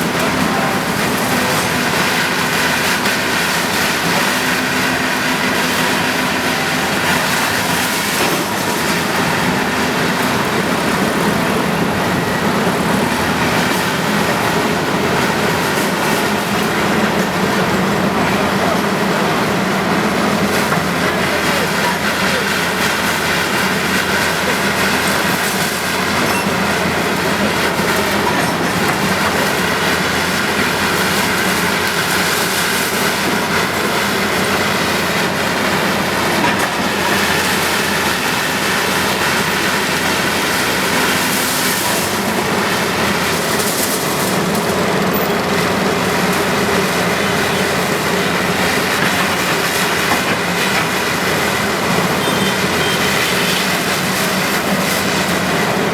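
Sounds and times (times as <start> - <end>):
bulldozer diesel engine running: 0.0 - 55.9
steel tracks clattering and squealing: 20.3 - 42.4, 43.0 - 55.9.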